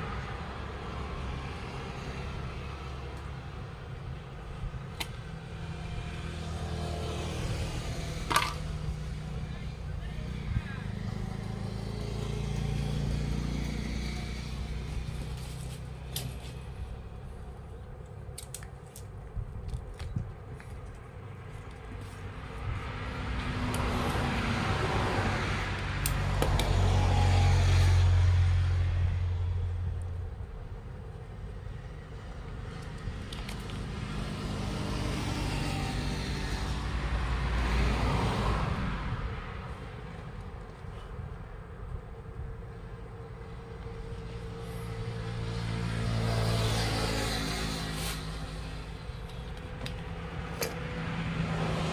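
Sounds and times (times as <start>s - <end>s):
road vehicle passing: 0.0s - 18.3s, 20.9s - 51.9s
low engine hum: 0.0s - 51.9s.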